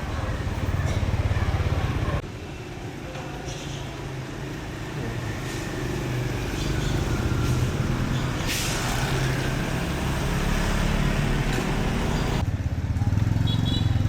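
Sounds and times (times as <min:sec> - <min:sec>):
short hiss: 0:08.4 - 0:08.9.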